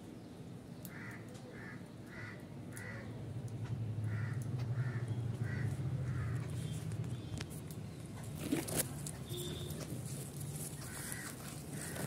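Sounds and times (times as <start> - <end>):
bird cawing: 0.9 - 3.1, 4.0 - 6.5, 10.8 - 12.0.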